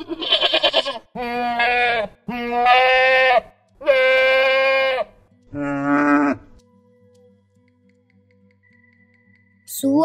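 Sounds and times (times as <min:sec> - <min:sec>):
goat bleating: 0:00.0 - 0:06.4.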